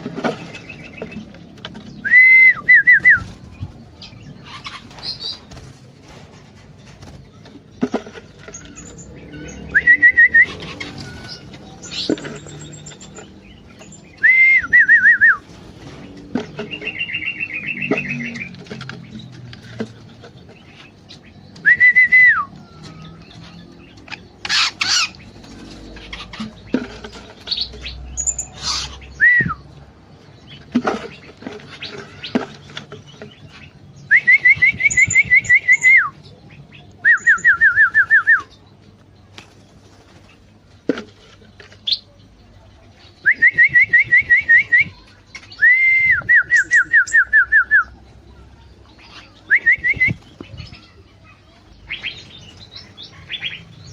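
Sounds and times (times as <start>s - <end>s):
soft bird chirps and calls: 0.0s - 53.9s
loud whistled birdsong phrase: 8.8s - 11.4s, 29.1s - 29.7s.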